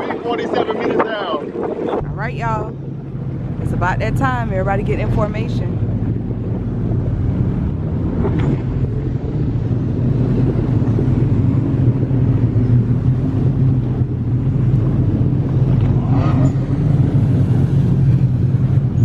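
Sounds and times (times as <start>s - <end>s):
jet ski engines idling: 2.0s - 19.0s.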